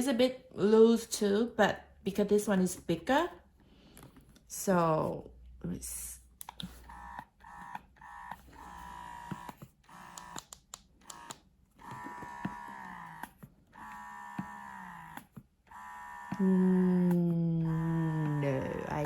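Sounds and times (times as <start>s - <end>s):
breast pump motor whirring: 6.2s - 19.0s.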